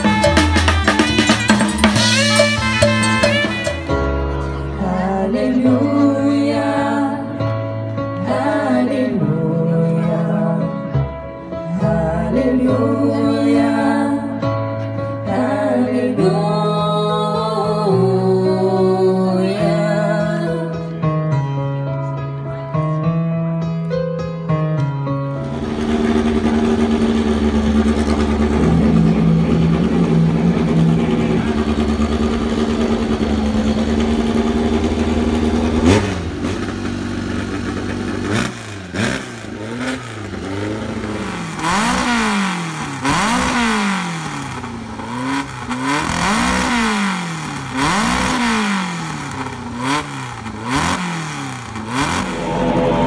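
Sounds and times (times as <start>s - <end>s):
race car engine revving: 25.4s - 53.0s.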